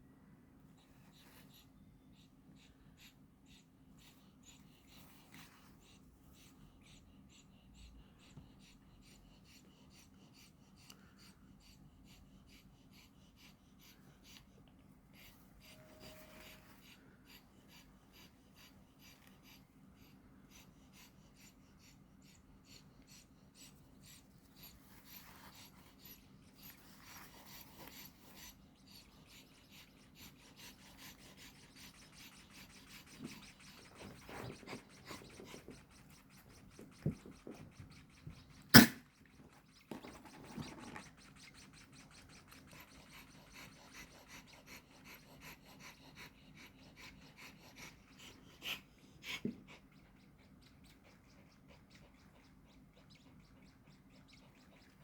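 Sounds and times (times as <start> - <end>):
nestling birds cheeping: 15.1 - 55.0
sharp click: 38.8 - 39.0.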